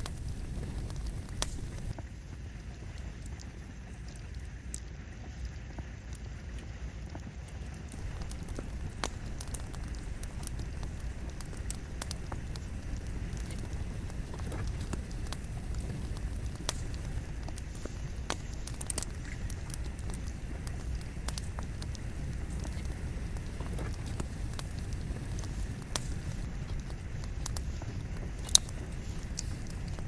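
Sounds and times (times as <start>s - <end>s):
campfire flame rumble: 0.0s - 30.0s
logs crackling and popping: 0.0s - 30.0s.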